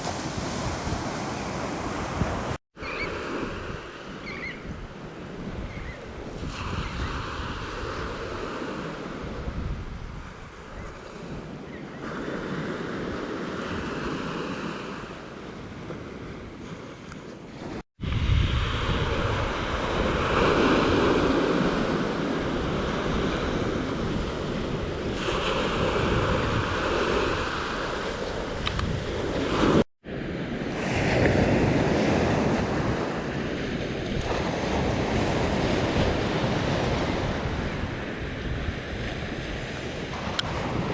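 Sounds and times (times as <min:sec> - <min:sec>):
ocean surf breaking: 0:00.0 - 0:03.6
wind buffeting microphone: 0:00.0 - 0:08.5, 0:09.2 - 0:11.8, 0:17.6 - 0:30.4, 0:31.0 - 0:40.9.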